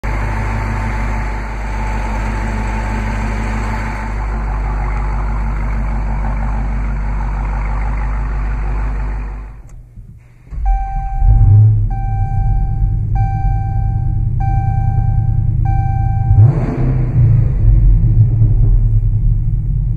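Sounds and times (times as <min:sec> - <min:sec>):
car engine idling and revving: 0:00.0 - 0:19.9
car warning chime: 0:10.6 - 0:16.6.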